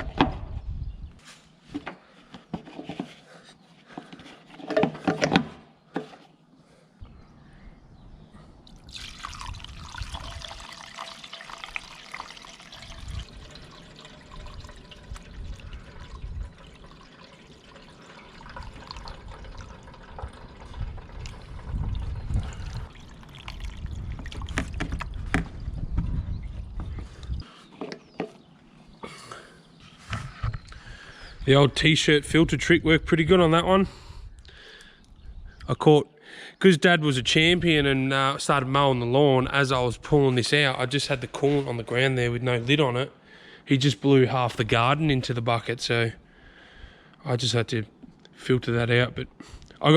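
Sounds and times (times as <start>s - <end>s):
coolant trickling through cloth: 8.7s - 25.4s.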